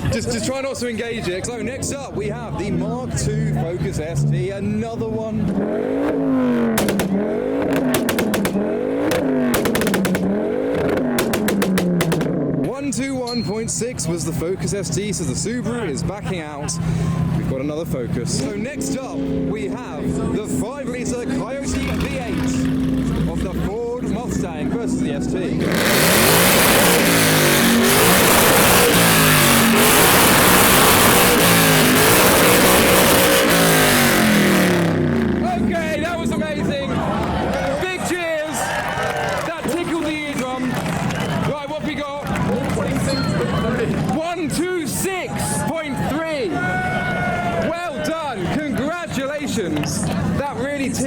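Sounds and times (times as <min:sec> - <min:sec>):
car engine revving hard: 0:02.6 - 0:12.8, 0:15.8 - 0:38.0
exhaust crackling pops: 0:05.4 - 0:12.8, 0:21.6 - 0:24.5, 0:25.2 - 0:38.0, 0:39.6 - 0:41.6.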